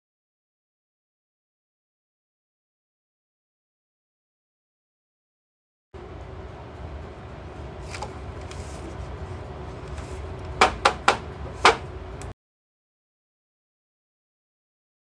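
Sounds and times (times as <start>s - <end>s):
low steady hum: 6.0s - 12.4s
sharp knocks: 10.6s - 11.8s.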